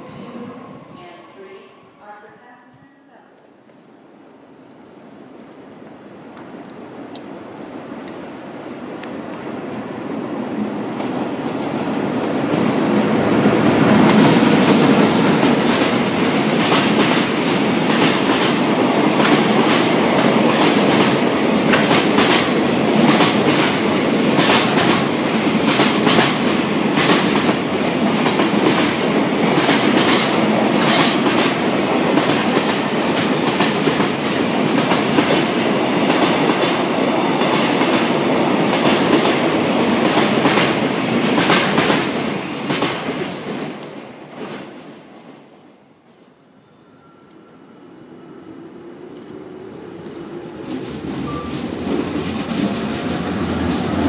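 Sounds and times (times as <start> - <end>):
train steady rumble: 11.0 - 45.6, 48.2 - 54.0.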